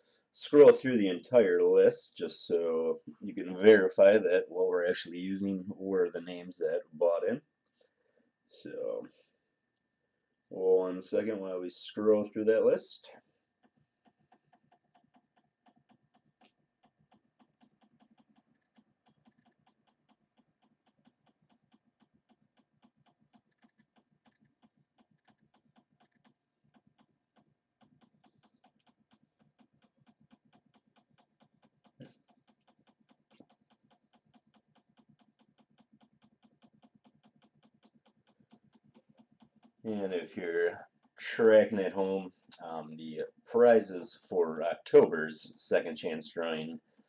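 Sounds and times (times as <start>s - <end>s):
mouse scroll wheel clicking: 13.6s - 39.9s, 40.8s - 41.8s.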